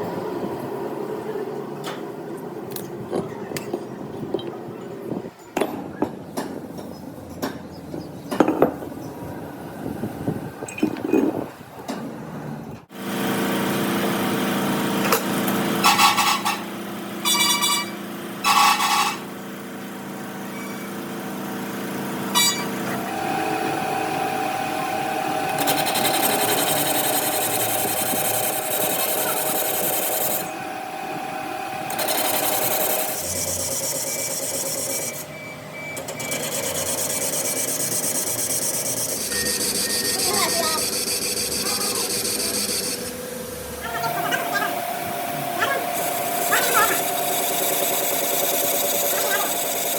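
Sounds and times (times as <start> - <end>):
loud bursts of tool noise: 12.9 - 35.3, 36.0 - 49.9
power tool motor hum: 22.2 - 35.2, 36.0 - 49.9.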